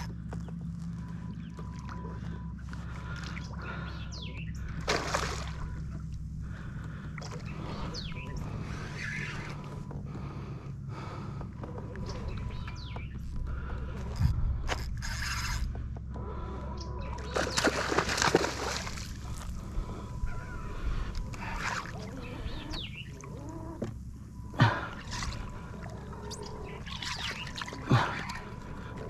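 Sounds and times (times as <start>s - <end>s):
water splashing and trickling: 4.9s - 5.6s, 17.4s - 19.4s.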